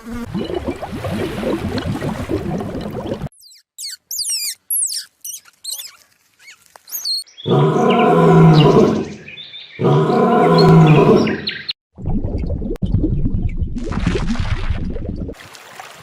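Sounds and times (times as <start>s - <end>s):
high chirps and falling whistles: 3.4s - 7.3s
low-pitched animal calls: 9.8s - 11.6s.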